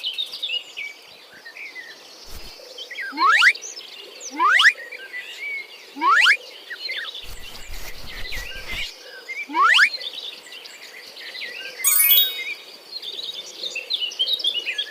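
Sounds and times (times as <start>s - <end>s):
upward-sweeping bird call: 11.9s - 12.5s.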